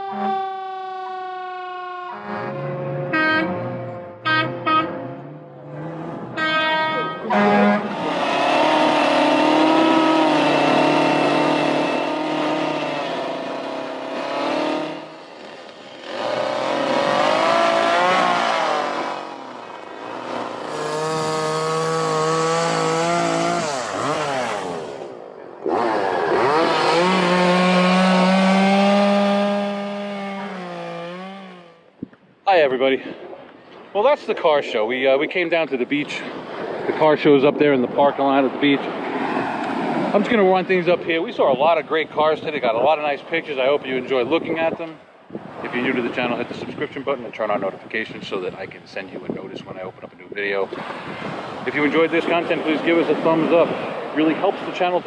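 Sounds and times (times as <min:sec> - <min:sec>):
vehicle horns blasting: 0:02.0 - 0:05.5, 0:06.3 - 0:13.0.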